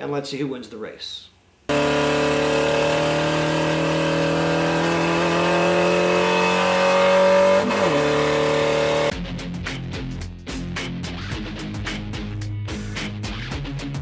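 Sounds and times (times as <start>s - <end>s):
racing car engine: 1.7s - 9.1s.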